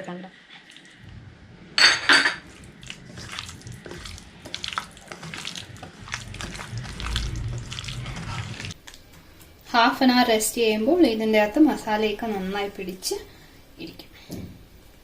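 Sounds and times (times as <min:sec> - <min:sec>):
chicken being mixed in marinade: 0:02.4 - 0:09.0.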